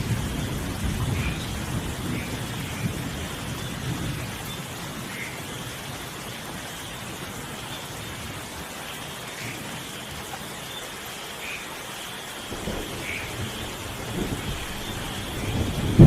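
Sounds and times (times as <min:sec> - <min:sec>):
thunder rumble: 0:00.0 - 0:05.2, 0:12.5 - 0:16.0
rain falling: 0:00.0 - 0:16.0
water drips: 0:00.0 - 0:16.0.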